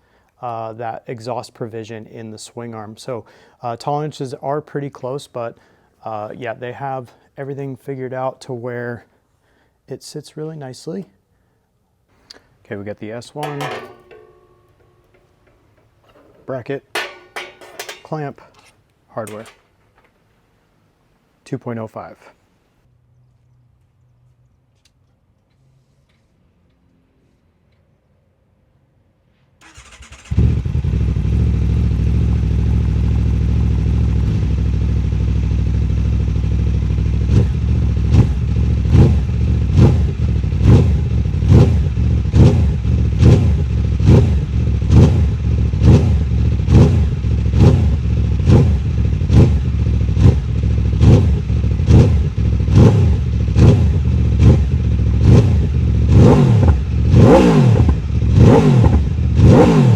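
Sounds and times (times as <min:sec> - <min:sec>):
motorcycle engine idling: 0:29.7 - 0:57.2
motorcycle throttle revs: 0:29.7 - 0:59.9.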